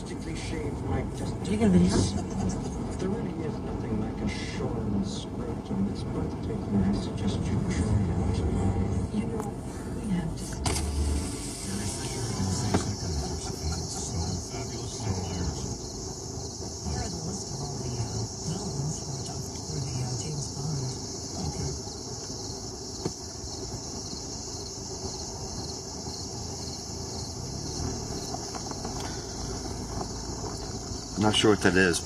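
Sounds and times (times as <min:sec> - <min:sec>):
crickets chirping: 0:00.0 - 0:32.0.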